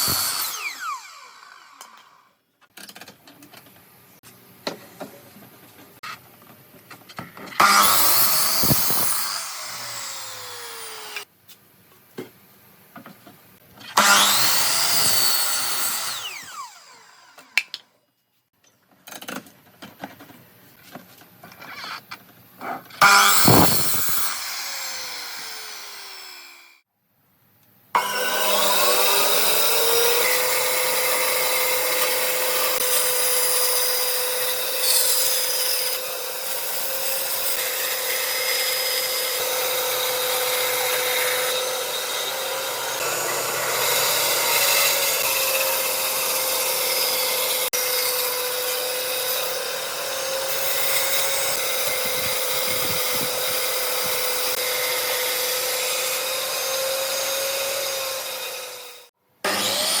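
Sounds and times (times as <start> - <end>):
power tool cutting wood: 0.0 - 2.4, 7.5 - 11.3, 13.8 - 17.7, 23.0 - 26.8, 28.0 - 60.0.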